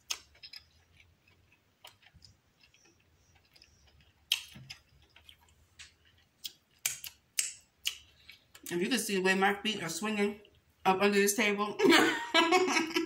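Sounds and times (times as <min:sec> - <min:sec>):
lip smacks: 0:00.0 - 0:08.7
person chewing with wet clicks: 0:00.0 - 0:08.8, 0:10.4 - 0:10.8.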